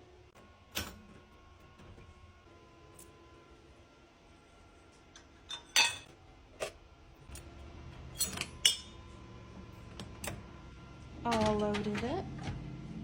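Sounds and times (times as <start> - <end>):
dishes clinking into dishwasher rack: 5.4 - 6.1.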